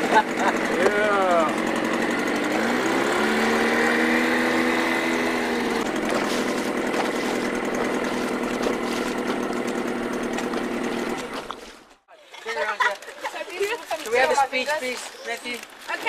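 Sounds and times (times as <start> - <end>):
outboard motor running at low revs: 0.0 - 12.0.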